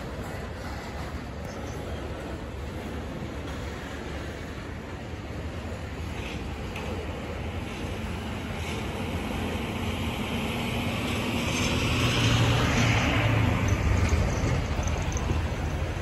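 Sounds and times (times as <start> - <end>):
freight train rolling rumble: 0.0 - 16.0.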